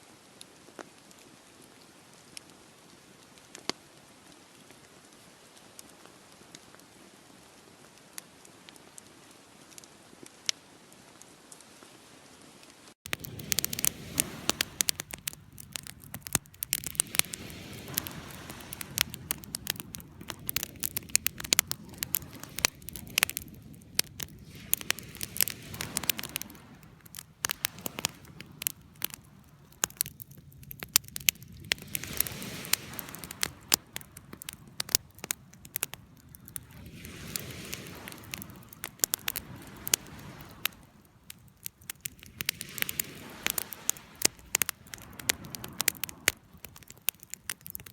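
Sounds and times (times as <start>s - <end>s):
campfire crackling: 0.0s - 47.9s
soft hiss of flames: 0.0s - 47.9s
sharp pops and snaps of wood: 41.3s - 47.9s.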